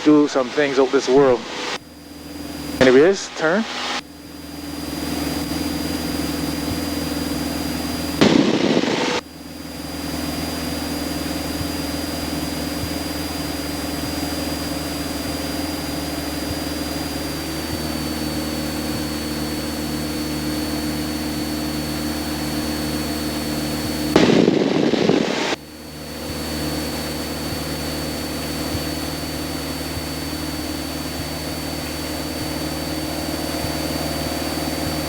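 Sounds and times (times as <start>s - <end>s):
loud burst of noise: 0.0s - 18.9s, 23.6s - 26.0s
propeller aircraft engine droning: 0.0s - 35.0s.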